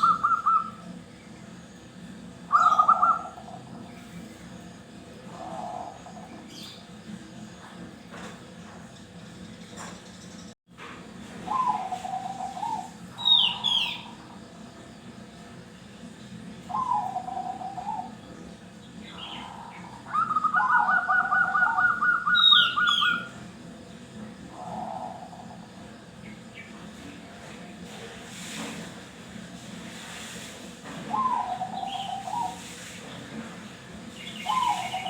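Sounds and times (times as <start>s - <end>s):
doves cooing in trilled phrases: 0.0s - 7.0s, 11.3s - 14.7s, 16.5s - 28.4s, 31.0s - 35.0s
higher bird trill: 2.4s - 6.8s, 11.5s - 14.4s, 19.0s - 23.4s.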